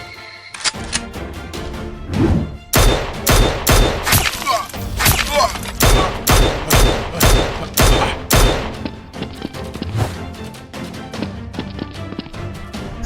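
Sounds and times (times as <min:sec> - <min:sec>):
rapid blaster gunfire: 0:02.8 - 0:04.2, 0:05.8 - 0:08.8.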